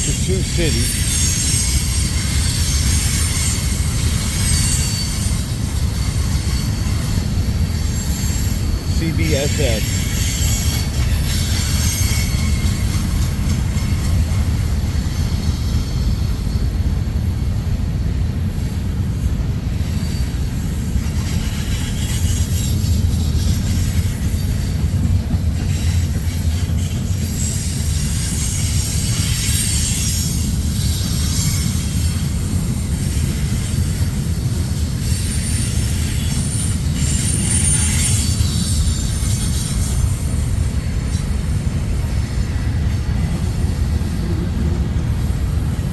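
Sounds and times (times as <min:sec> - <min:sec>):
freight train rumbling on rails: 0:00.0 - 0:45.9
high-pitched wheel squeal: 0:00.9 - 0:13.2.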